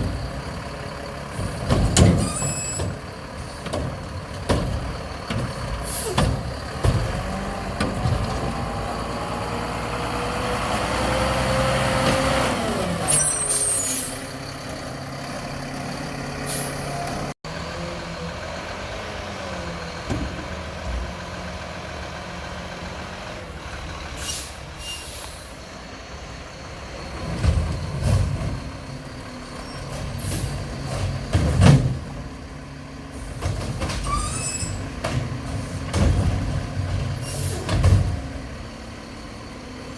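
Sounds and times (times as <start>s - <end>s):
diesel engine revving: 0.0s - 39.9s
air brake hisses: 24.2s - 25.6s
loud knocks and clanks: 35.0s - 38.3s.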